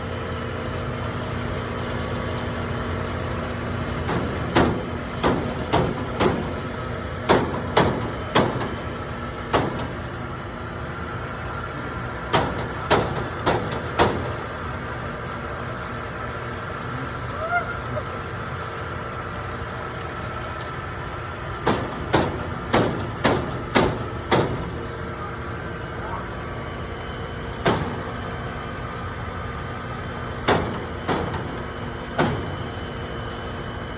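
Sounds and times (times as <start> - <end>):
steady background hum: 0.0 - 33.9
sharp knocks on metal unit: 21.6 - 24.7.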